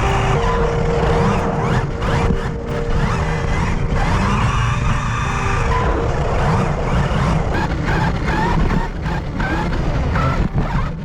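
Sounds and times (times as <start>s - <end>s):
electric motors whining: 0.0s - 11.0s
tyres rumbling: 0.0s - 11.0s.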